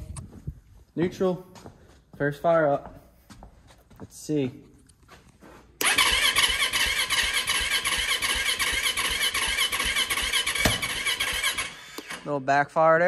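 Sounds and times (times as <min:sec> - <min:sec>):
dirt bike engine running: 0:05.8 - 0:11.7.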